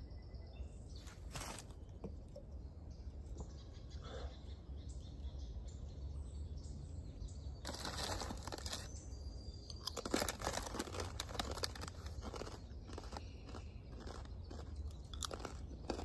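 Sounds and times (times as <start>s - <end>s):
crinkling and rustling: 7.6s - 9.0s, 9.8s - 12.6s.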